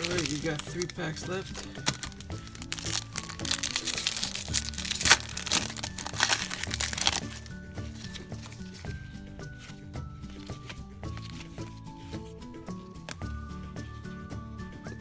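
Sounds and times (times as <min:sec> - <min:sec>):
wrapper crinkling and tearing: 0:00.0 - 0:08.8
background music: 0:00.0 - 0:15.0.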